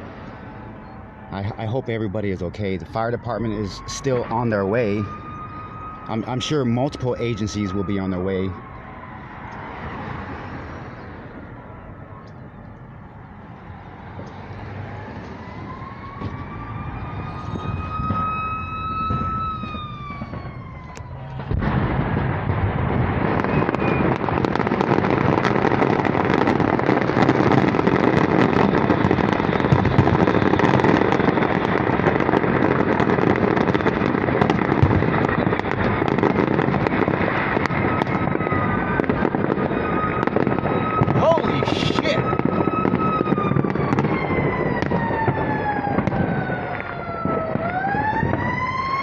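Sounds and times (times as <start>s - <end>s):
emergency vehicle siren wailing: 0.0s - 49.0s
fireworks crackling and popping: 14.1s - 49.0s.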